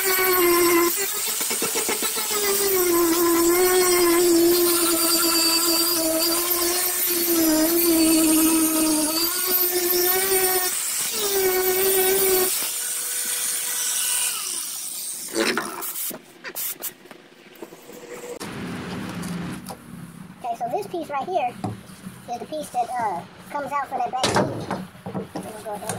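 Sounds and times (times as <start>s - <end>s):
power grinder whining: 0.0s - 16.1s.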